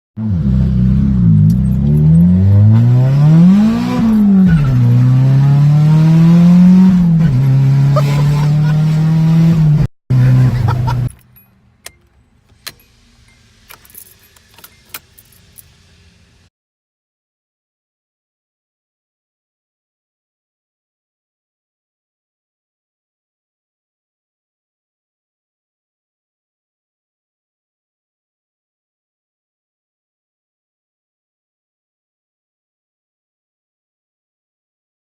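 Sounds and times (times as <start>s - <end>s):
car engine revving: 0.2s - 11.1s
light clicks and jingles: 11.1s - 12.2s.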